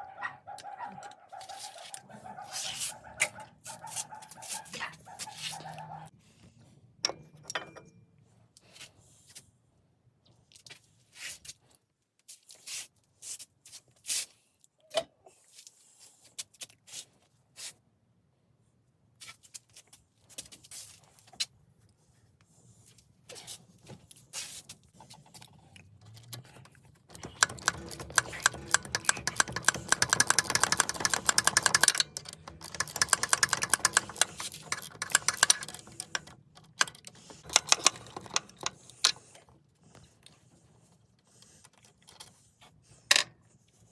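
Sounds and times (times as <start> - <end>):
tools and metal parts clinking: 7.0 - 8.0, 26.0 - 39.3
rapid continuous clicking: 26.2 - 39.2.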